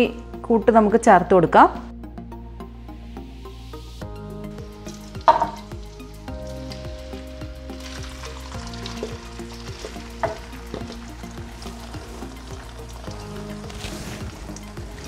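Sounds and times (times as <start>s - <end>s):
batter sizzling in hot oil: 4.4s - 15.0s.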